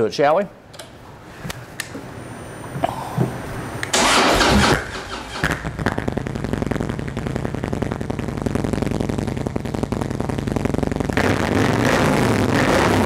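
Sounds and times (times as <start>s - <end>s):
motorcycle engine revving: 3.9s - 13.0s.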